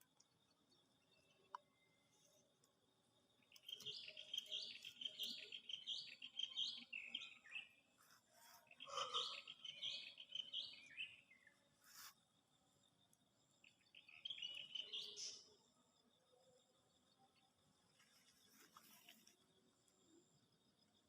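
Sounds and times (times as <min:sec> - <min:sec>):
small songbird twittering: 0:03.4 - 0:12.2, 0:13.6 - 0:15.5.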